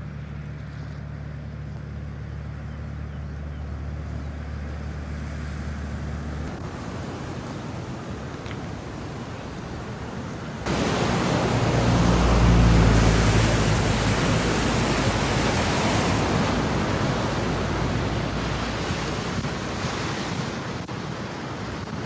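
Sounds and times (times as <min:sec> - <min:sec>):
floodwater roaring: 0:02.4 - 0:22.0
deep rumble: 0:10.7 - 0:19.8.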